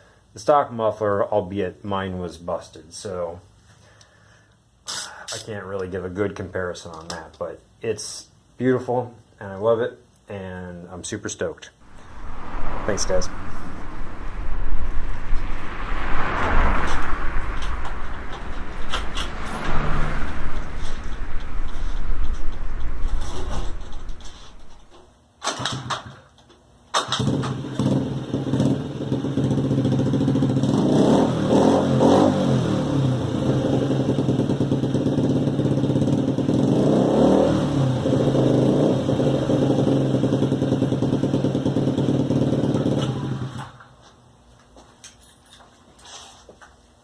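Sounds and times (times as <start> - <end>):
scooter engine idling: 27.2 - 30.7, 39.5 - 43.6.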